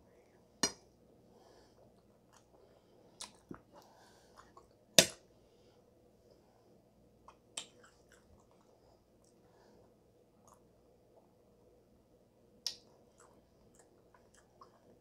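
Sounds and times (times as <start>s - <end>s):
close-miked chewing: 1.9s - 4.8s, 7.2s - 9.4s, 10.3s - 11.3s, 12.6s - 15.0s.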